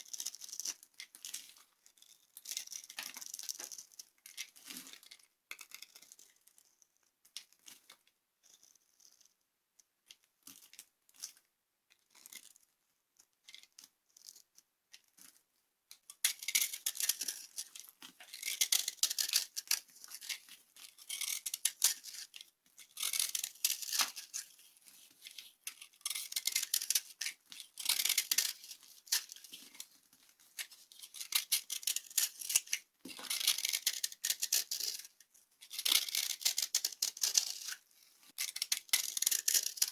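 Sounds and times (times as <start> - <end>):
dry soap crunching and crackling: 16.5 - 39.9.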